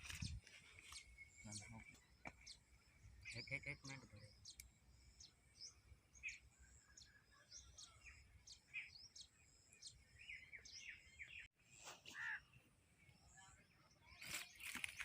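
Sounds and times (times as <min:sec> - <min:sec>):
bird chirping: 0:00.0 - 0:11.5.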